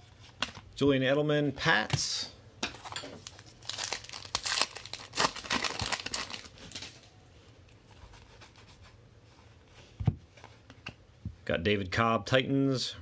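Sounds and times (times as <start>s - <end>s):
plastic wrapper crinkling and tearing: 2.8s - 7.1s.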